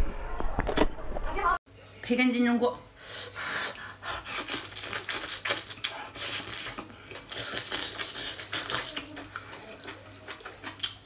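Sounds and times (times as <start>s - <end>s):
close chewing mouth noises: 4.2s - 11.0s.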